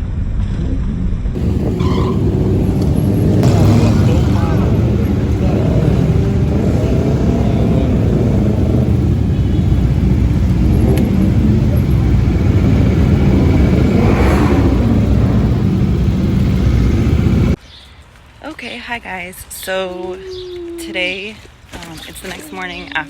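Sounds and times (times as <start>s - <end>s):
wind buffeting microphone: 1.3s - 17.6s
motorcycle engines rumbling: 1.4s - 17.6s.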